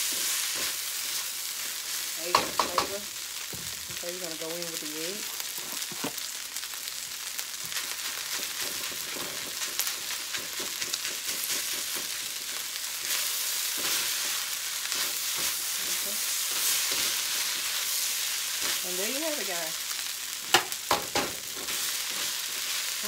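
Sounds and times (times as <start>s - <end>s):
rice sizzling in a wok: 0.0s - 23.0s
spatula scraping a pan: 7.7s - 19.4s, 21.2s - 23.0s.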